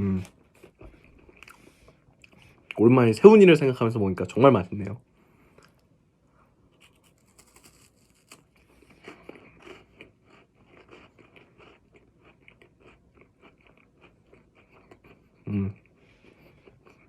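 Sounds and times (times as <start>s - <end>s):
person chewing crunchy cereal: 0.2s - 2.7s, 6.7s - 17.0s.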